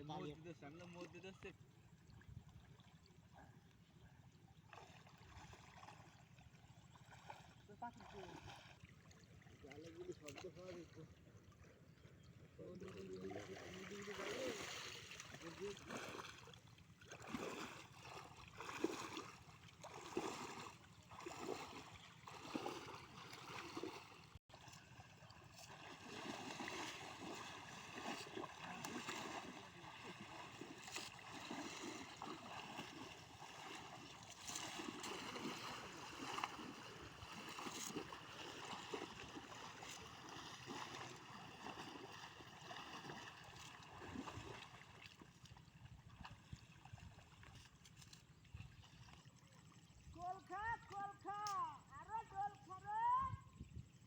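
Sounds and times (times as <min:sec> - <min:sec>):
river water splashing: 0:04.4 - 0:53.2
moving water washing: 0:07.2 - 0:11.1, 0:12.6 - 0:45.5.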